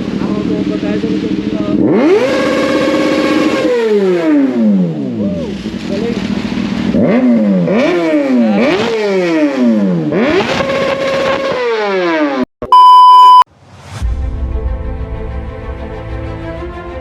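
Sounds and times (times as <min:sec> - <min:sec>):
motorcycle engine revving: 0:00.0 - 0:12.4
loud steady electronic beep: 0:12.6 - 0:13.5
music: 0:14.0 - 0:17.0.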